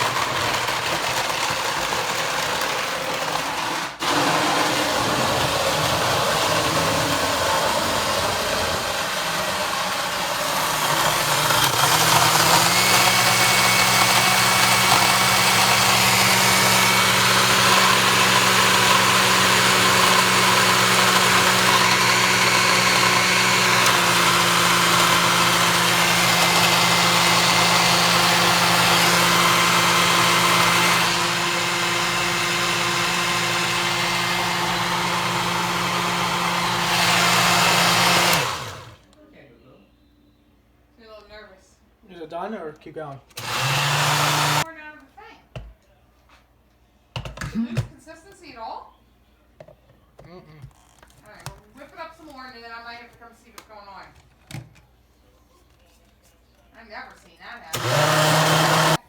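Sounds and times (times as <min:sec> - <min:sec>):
electric blender motor running: 0:00.0 - 0:39.0, 0:43.3 - 0:44.7, 0:57.7 - 0:59.0.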